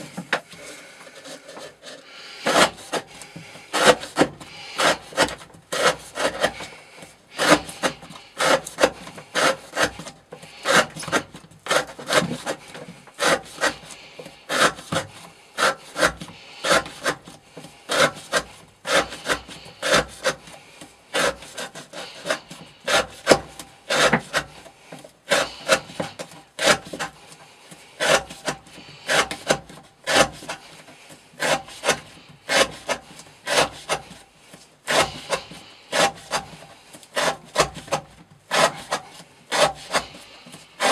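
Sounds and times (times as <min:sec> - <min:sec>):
knife blade rasping strokes: 0:34.9 - 0:40.9.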